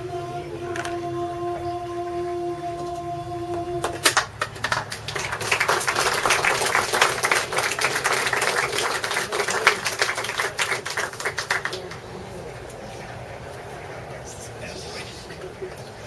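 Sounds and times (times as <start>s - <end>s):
held musical note: 0.0s - 4.1s
audience applause: 3.5s - 16.0s.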